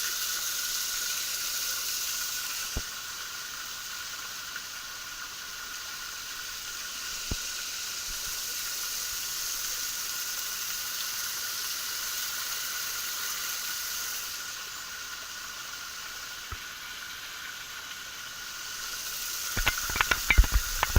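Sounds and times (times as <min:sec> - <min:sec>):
small waterfall splashing: 0:00.0 - 0:20.9
faint clicks: 0:19.5 - 0:20.9.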